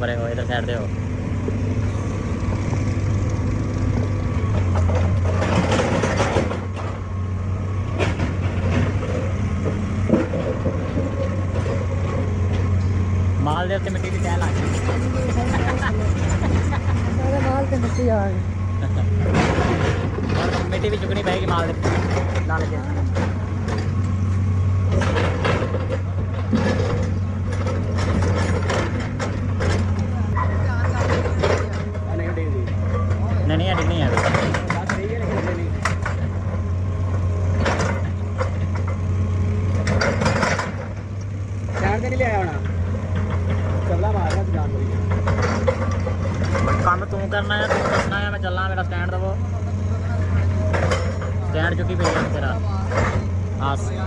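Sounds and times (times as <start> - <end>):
diesel engine running: 0.0 - 54.0
machine clacks and knocks: 4.5 - 7.0, 19.2 - 24.1, 24.9 - 30.1, 30.7 - 36.6, 39.7 - 41.1, 41.7 - 49.2, 50.2 - 54.0.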